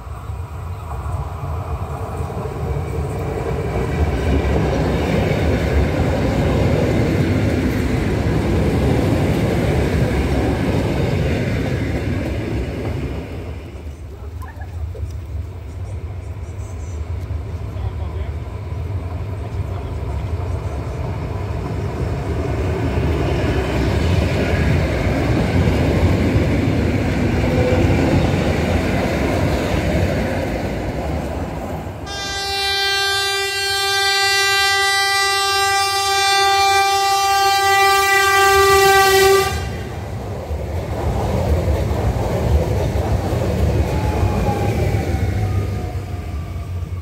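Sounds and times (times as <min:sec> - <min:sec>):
train passing with rail noise: 0:00.0 - 0:47.0
trains rumbling on track: 0:00.0 - 0:47.0
train horn long note: 0:32.0 - 0:40.1.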